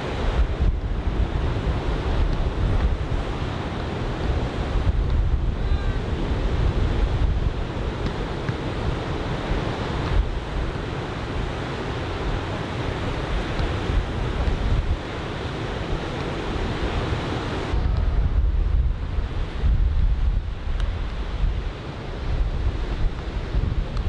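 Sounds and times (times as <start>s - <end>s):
wind buffeting microphone: 0.2s - 24.0s
waves breaking on beach: 7.7s - 17.8s.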